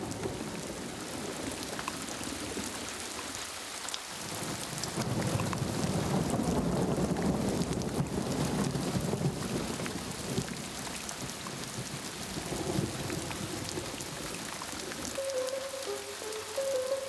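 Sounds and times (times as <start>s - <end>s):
rain pouring down: 0.0s - 17.0s
music notes: 15.1s - 17.0s.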